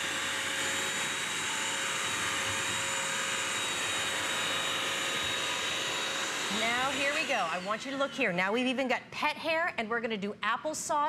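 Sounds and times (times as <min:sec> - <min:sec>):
constant high whine: 0:00.0 - 0:08.4
wet vacuum scrubbing floor: 0:02.1 - 0:08.4.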